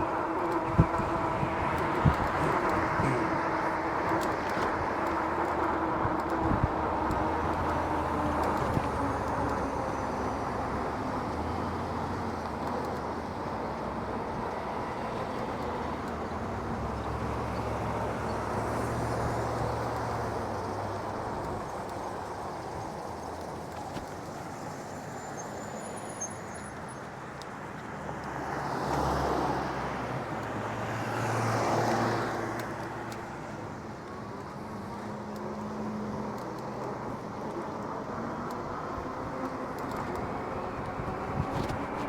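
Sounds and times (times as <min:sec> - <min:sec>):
vehicles passing: 0:00.0 - 0:25.1, 0:26.3 - 0:42.0
wind and road noise: 0:00.0 - 0:42.0.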